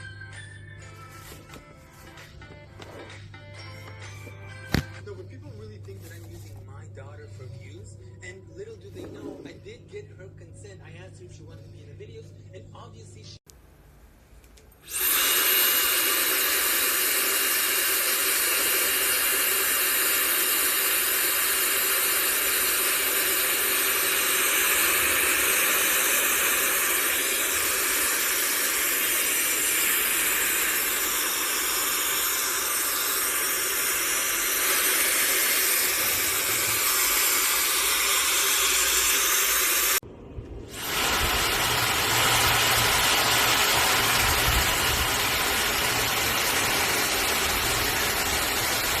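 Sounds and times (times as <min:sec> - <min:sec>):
hair dryer running: 0:01.2 - 0:05.0, 0:14.8 - 0:40.0, 0:40.6 - 0:49.0.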